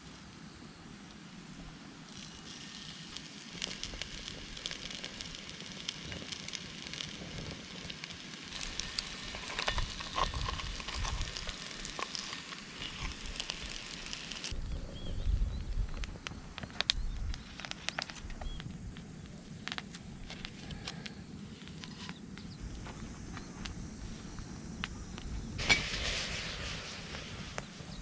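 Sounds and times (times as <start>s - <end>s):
food sizzling over campfire: 0.0s - 14.6s, 23.6s - 28.0s.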